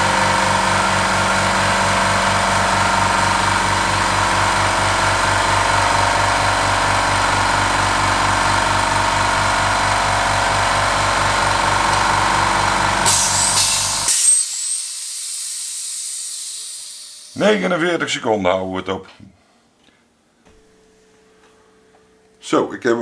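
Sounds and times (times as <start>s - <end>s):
air compressor running: 0.0s - 17.5s
air hissing: 11.6s - 17.5s.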